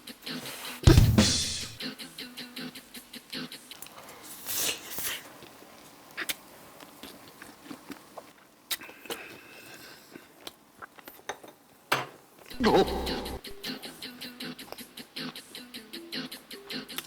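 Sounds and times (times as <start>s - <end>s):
mouth clicks and smacks: 12.5s - 13.7s.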